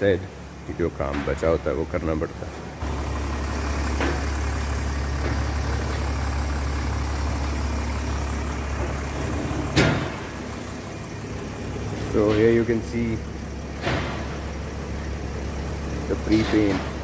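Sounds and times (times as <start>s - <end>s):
car engine idling: 0.0s - 17.0s
loud thump: 9.6s - 10.3s.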